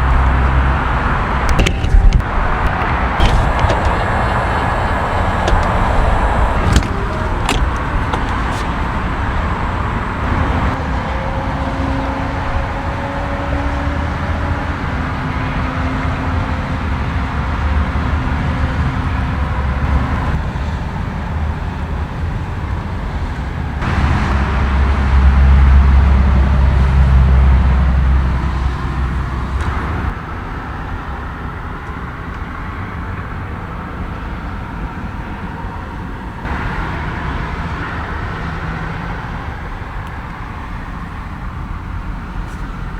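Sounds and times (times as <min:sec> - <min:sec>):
car engine running: 0:00.6 - 0:10.7.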